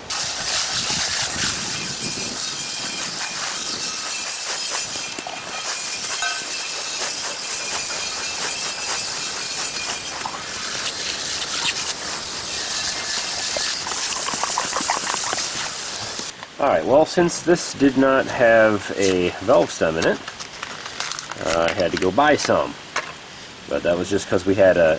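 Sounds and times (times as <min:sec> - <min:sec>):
scraping on steel rim: 0:00.0 - 0:16.3
steady hissing: 0:00.0 - 0:22.6.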